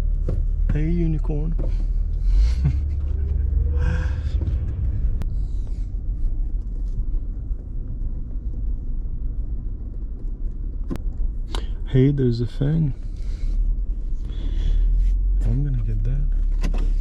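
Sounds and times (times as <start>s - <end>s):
car driving rumble: 0.0s - 17.0s
engine note rising: 1.9s - 8.2s.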